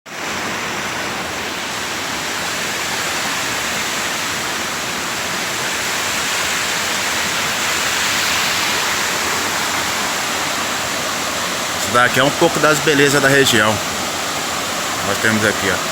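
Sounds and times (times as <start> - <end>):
creek water rushing: 0.1 - 15.9.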